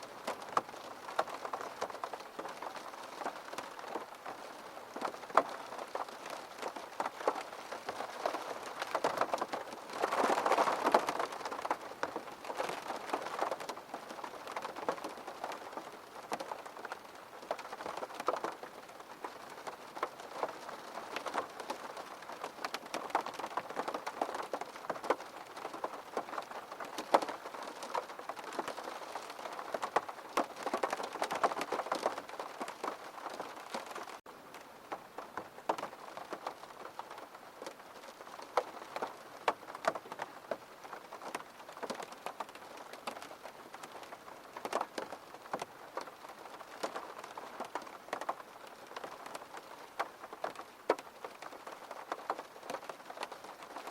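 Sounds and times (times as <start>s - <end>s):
raindrops ticking: 0.0s - 53.9s
steady rain falling: 0.0s - 53.9s.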